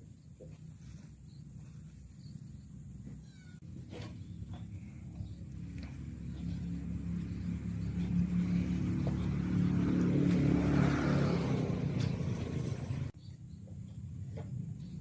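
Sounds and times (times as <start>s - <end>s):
vehicle engine passing by: 3.9s - 13.2s.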